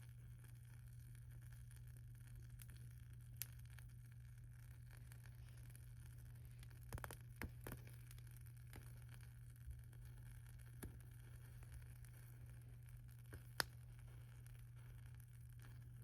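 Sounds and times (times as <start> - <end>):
wood fire crackling: 0.0 - 16.0
sharp pops of fire: 13.2 - 13.8.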